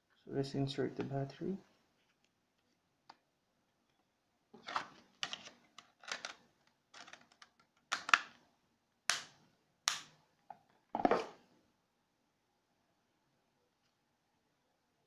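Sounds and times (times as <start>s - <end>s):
plastic phone parts clicking: 5.2s - 8.4s.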